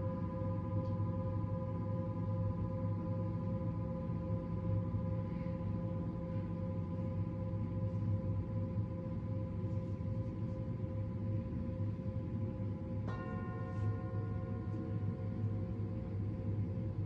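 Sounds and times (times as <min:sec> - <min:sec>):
low dense hum: 0:00.0 - 0:17.0
steady bell-like tones: 0:10.8 - 0:17.0.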